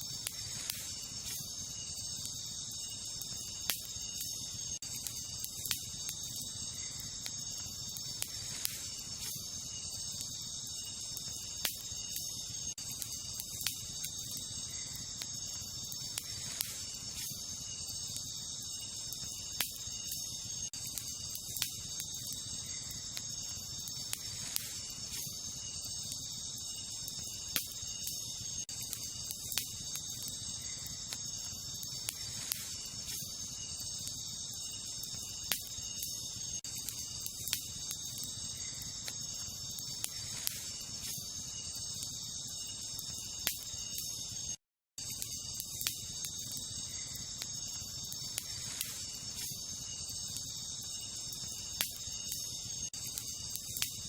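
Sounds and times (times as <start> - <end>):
campfire crackling and popping: 0.0 - 54.0
night insects chorus: 0.0 - 54.0.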